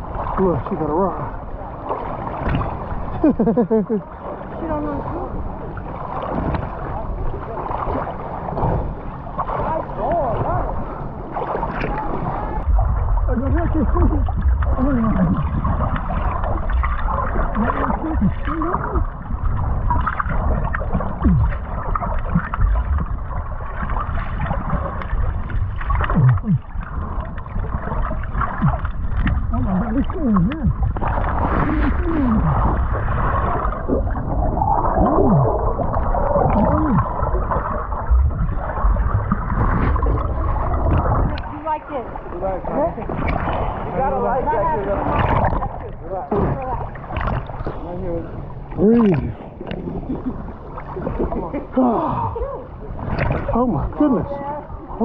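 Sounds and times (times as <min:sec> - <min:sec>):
water sloshing and gurgling: 0:00.0 - 0:55.0
muffled vocal glides: 0:13.6 - 0:15.5, 0:21.1 - 0:21.7, 0:26.0 - 0:26.7, 0:29.5 - 0:30.8, 0:34.7 - 0:35.7, 0:36.4 - 0:37.2.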